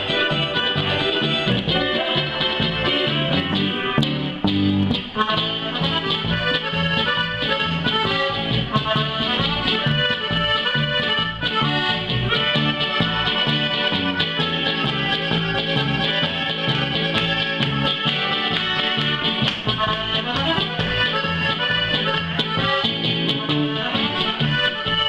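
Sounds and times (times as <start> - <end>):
accordion playing: 0.0 - 25.0
steady bass beat: 0.0 - 25.0.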